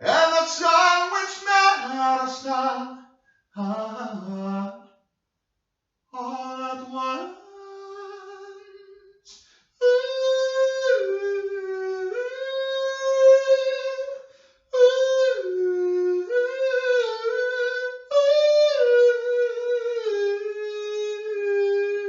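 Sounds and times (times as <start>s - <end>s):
person humming a melody: 6.2s - 9.1s, 9.8s - 22.0s
person breathing: 9.3s - 9.8s, 14.2s - 14.7s.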